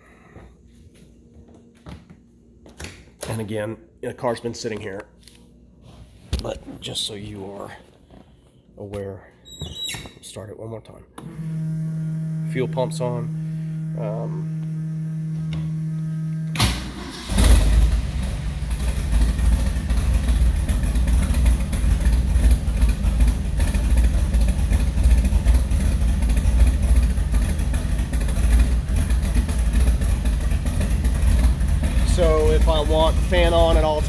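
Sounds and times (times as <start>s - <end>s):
car engine cranking and idling: 11.2s - 34.0s
electric fuel pump humming: 11.2s - 34.0s.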